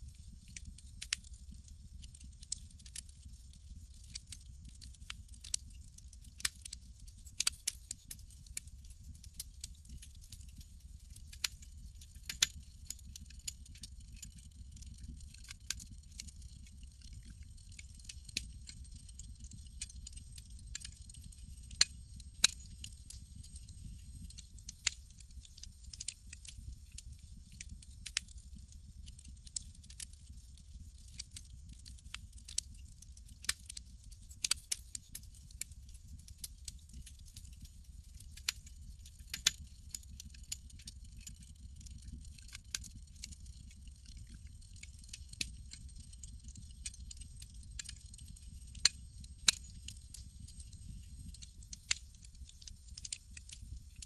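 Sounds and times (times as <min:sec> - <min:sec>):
campfire crackling: 0:12.2 - 0:27.0, 0:39.4 - 0:41.5, 0:42.3 - 0:53.6.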